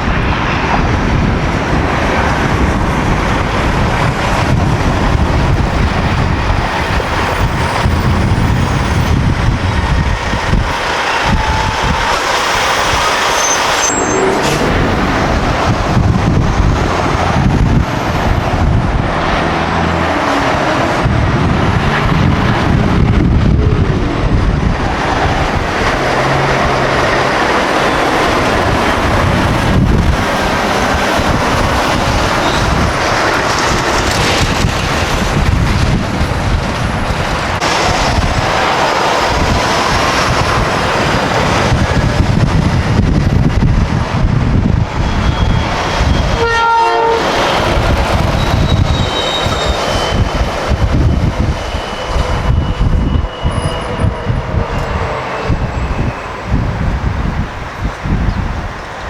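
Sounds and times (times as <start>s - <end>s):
trucks driving past: 0.0s - 59.0s.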